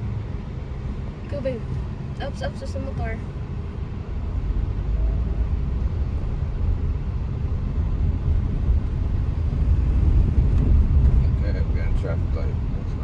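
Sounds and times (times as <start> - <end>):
car driving engine and tyres: 0.0 - 13.0.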